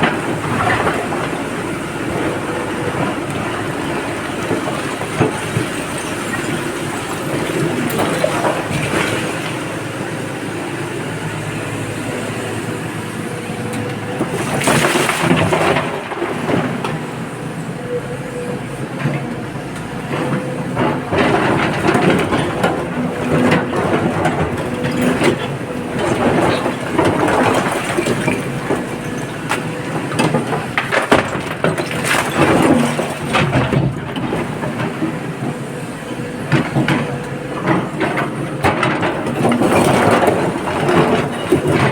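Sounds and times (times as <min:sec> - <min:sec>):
excavator engine: 0:00.0 - 0:41.9
rattle and clatter of rock: 0:20.3 - 0:35.6, 0:36.5 - 0:41.9.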